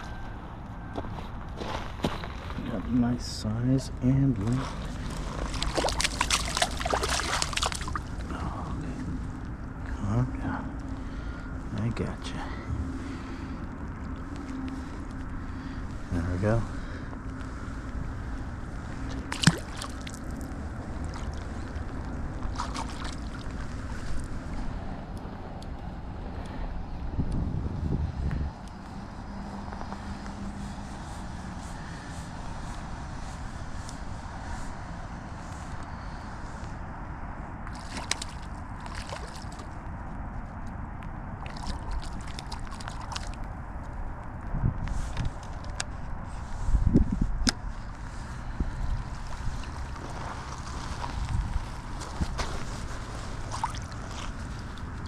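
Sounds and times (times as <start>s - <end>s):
wind buffeting microphone: 2.3s - 55.0s
water sloshing: 4.4s - 9.1s, 18.7s - 24.8s, 37.6s - 39.9s, 41.3s - 43.9s, 49.5s - 55.0s.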